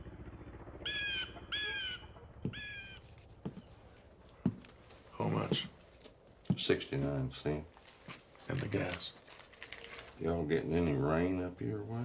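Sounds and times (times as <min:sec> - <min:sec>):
low hum: 0:00.0 - 0:03.4
crow cawing: 0:00.8 - 0:03.0.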